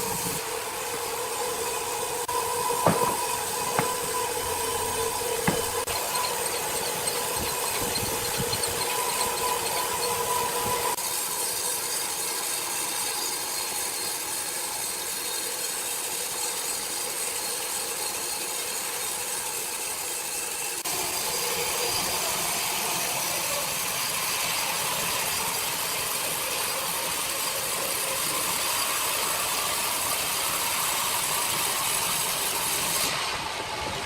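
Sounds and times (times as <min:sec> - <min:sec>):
sawmill machinery running: 0:00.1 - 0:13.0.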